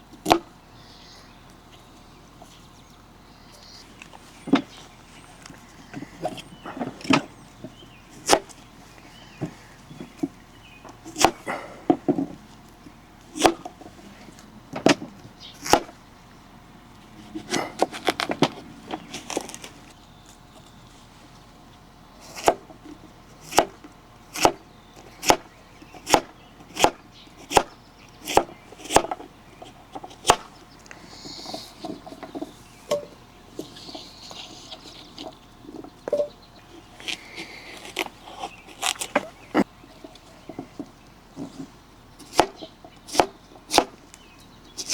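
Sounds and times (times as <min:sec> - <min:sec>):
knife chopping on cutting board: 0:11.2 - 0:11.5.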